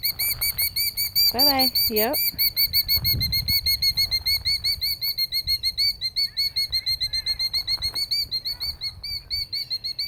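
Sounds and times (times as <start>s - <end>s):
killdeer alarm calling: 0.0s - 3.0s.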